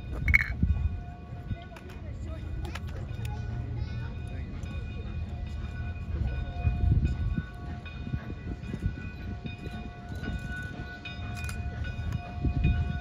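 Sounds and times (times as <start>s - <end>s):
high ringing tones: 0.0s - 1.8s
train wheels rumbling: 0.0s - 13.0s.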